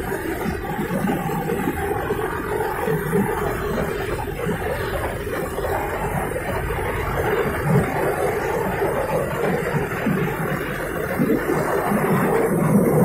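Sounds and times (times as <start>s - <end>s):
diesel locomotive engine working: 0.0s - 13.0s
train wheels rumbling and rattling: 0.0s - 13.0s.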